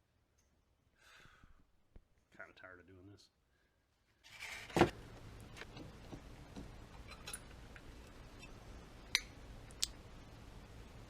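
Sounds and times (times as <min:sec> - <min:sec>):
low steady hum: 0:04.4 - 0:11.0.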